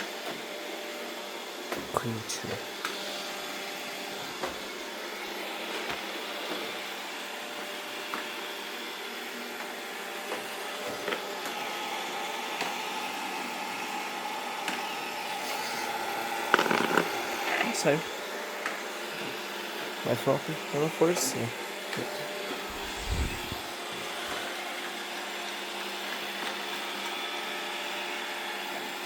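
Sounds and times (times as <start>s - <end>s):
robot vacuum cleaner humming: 2.6s - 29.0s
higher hum: 22.7s - 23.9s.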